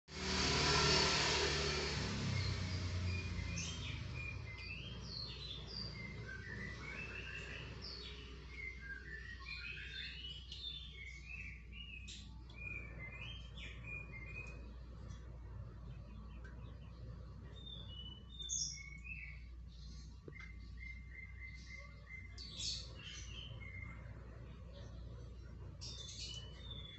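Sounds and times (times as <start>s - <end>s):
small birds chirping: 2.0s - 26.9s
steady low hum: 10.9s - 26.9s.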